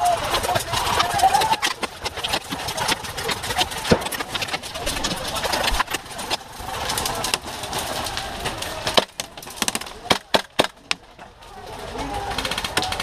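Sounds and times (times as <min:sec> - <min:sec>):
faint background voices: 0:03.4 - 0:13.0
airsoft guns firing: 0:08.2 - 0:11.0.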